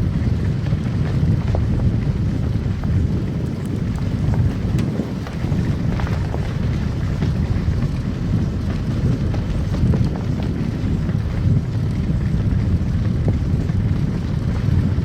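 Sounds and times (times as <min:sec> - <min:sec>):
tyres and engine rumble: 0:00.0 - 0:15.0
faint ticks: 0:03.4 - 0:06.5.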